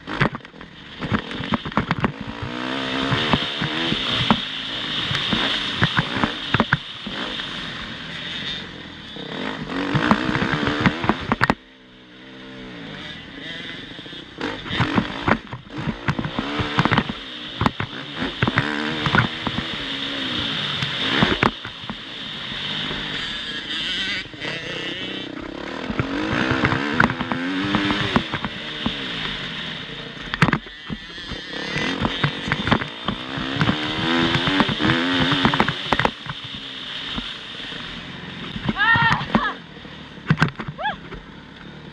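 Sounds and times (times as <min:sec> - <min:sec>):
motocross bike engine revving: 0:00.0 - 0:41.9
sharp clattering knocks: 0:00.1 - 0:07.2, 0:09.6 - 0:11.6, 0:14.6 - 0:20.0, 0:25.8 - 0:29.0, 0:30.3 - 0:37.4.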